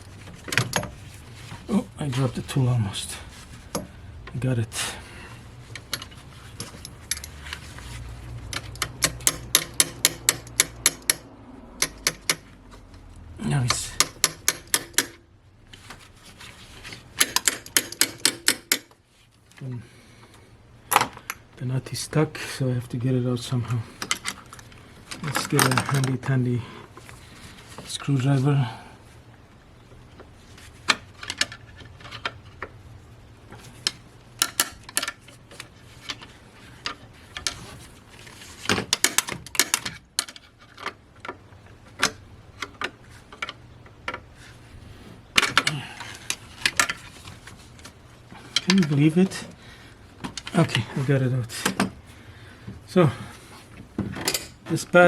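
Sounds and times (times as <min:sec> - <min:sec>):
ratchet wrench clicking: 0:08.5 - 0:11.2, 0:11.8 - 0:12.5
screwdriver clicking on metal nut: 0:11.8 - 0:12.4, 0:17.2 - 0:18.9.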